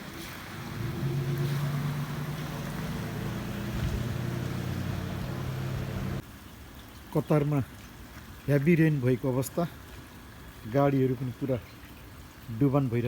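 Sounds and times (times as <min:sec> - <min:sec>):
rain hiss: 0:00.0 - 0:13.0
vehicle engine running: 0:00.6 - 0:06.2.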